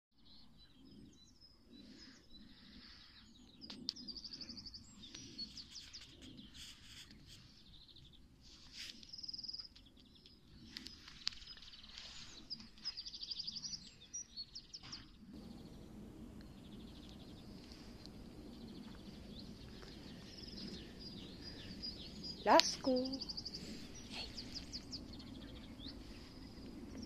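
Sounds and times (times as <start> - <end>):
low steady background noise: 0.2 - 27.0
songbirds trilling and chirping: 0.2 - 27.0.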